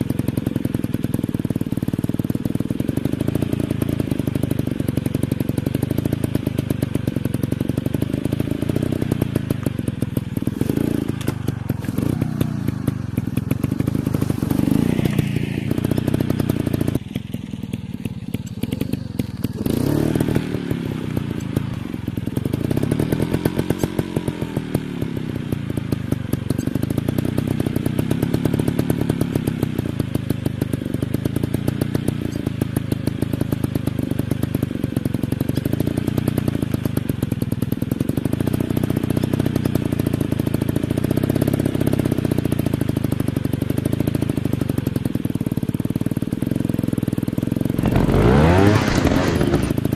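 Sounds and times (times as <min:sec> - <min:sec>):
dirt bike engine revving: 0:07.3 - 0:17.0, 0:18.2 - 0:25.0, 0:47.7 - 0:49.9.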